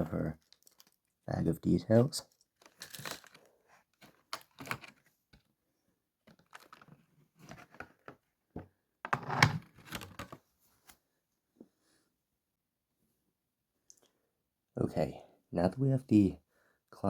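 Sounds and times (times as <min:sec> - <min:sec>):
plastic packaging crinkling: 0:00.4 - 0:01.2, 0:02.4 - 0:03.6.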